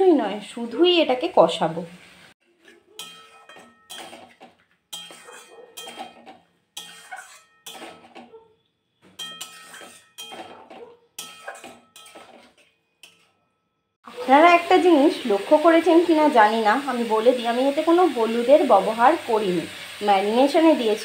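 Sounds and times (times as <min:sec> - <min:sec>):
metal utensil scraping a pan: 0:01.8 - 0:13.6.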